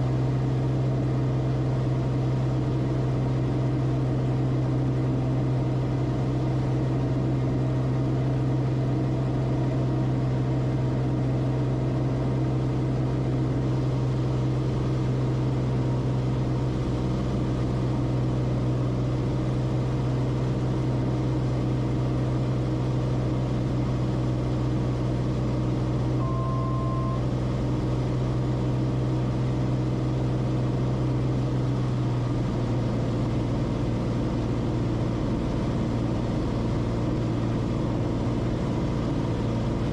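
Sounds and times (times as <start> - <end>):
aircraft engine and propeller drone: 0.0 - 39.9
short beep: 26.2 - 27.3.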